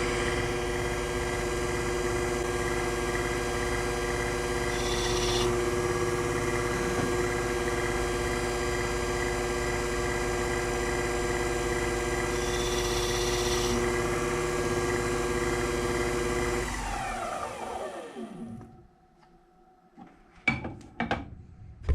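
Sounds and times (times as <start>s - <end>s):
lathe motor whine: 0.0s - 18.8s.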